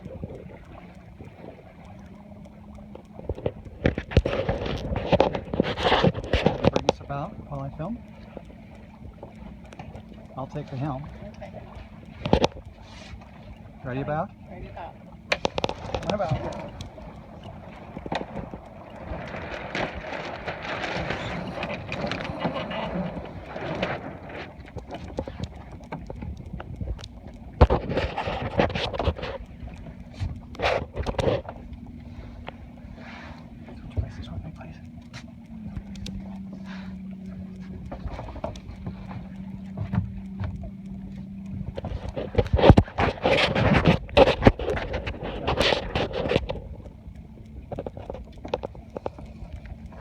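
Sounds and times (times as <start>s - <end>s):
low hum: 0.0s - 50.0s
sails flapping: 0.0s - 50.0s
wind on microphone: 15.4s - 50.0s.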